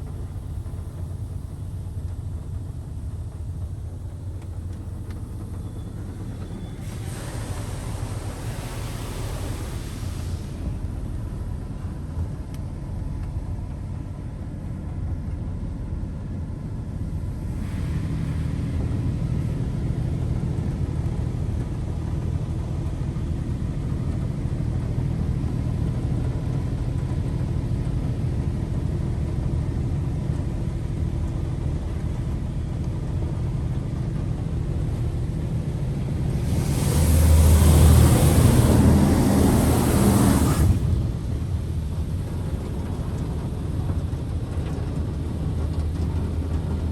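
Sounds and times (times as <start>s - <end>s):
rush of high-pressure water: 0.0s - 12.9s, 17.2s - 21.6s, 34.7s - 46.9s
car wash low rumble: 0.0s - 46.9s.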